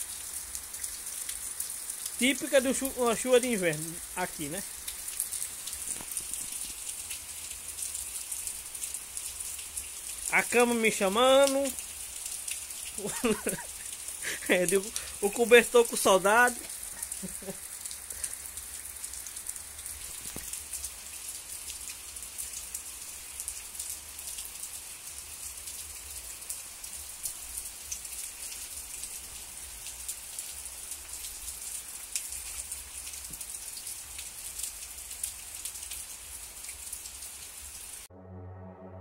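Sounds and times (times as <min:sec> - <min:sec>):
raindrops ticking: 0:00.0 - 0:24.6, 0:25.7 - 0:37.2
steady rain hiss: 0:00.0 - 0:38.1
ambient electronic music: 0:38.1 - 0:39.0.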